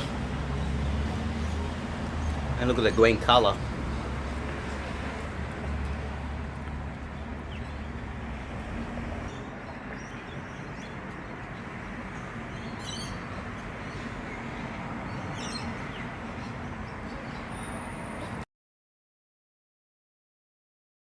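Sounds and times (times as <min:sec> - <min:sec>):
birds chirping: 0:00.0 - 0:18.4
rushing outdoor background noise: 0:00.0 - 0:18.5.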